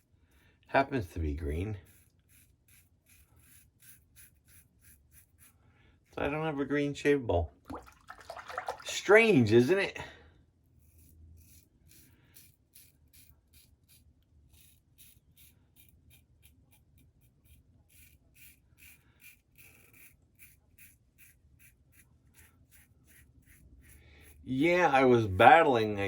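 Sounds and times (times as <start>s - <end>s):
razor scraping stubble: 1.2s - 6.4s, 10.7s - 26.0s.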